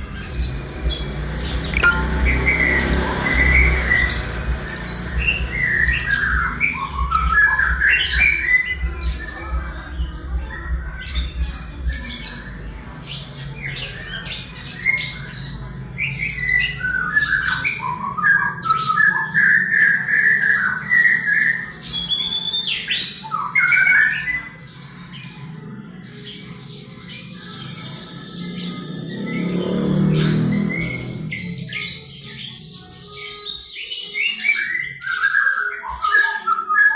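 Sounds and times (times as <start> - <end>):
bird singing mimicry song: 0.0 - 36.9.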